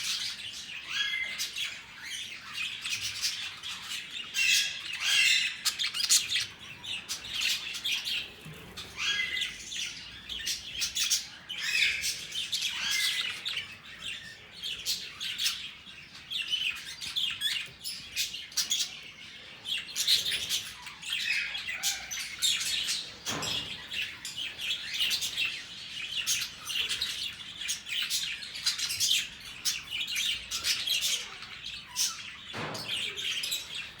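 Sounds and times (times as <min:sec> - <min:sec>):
budgerigars chirping and chattering: 0:00.0 - 0:34.0.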